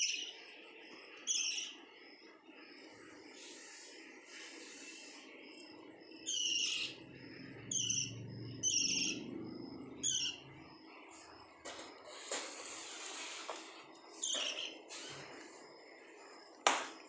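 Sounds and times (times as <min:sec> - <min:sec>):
lovebirds shrill calls: 0:00.0 - 0:00.4, 0:01.2 - 0:01.8, 0:06.2 - 0:09.3, 0:10.0 - 0:10.5, 0:14.2 - 0:15.3.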